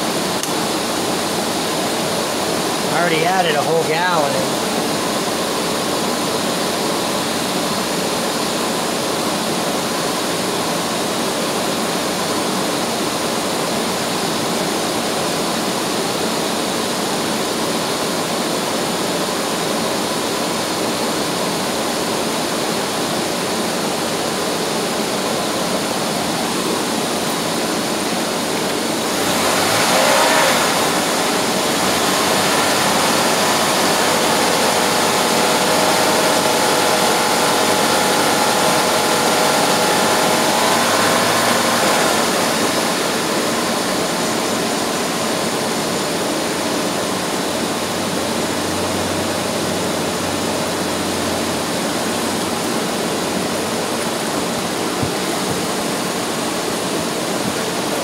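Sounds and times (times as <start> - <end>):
car engine idling: 24.4 - 58.0.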